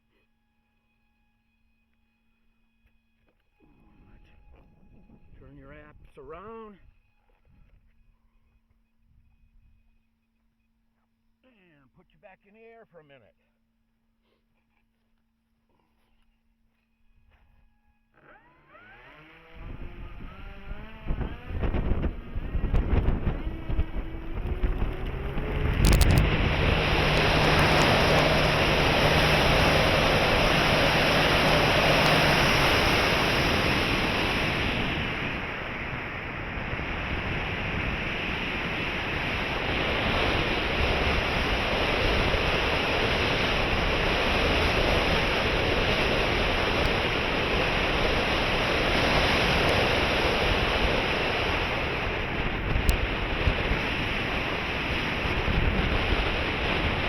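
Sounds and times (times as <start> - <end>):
wind on microphone: 6.8 - 9.9, 19.5 - 57.0
electric motor humming: 18.1 - 55.6
sharp click: 25.6 - 26.3.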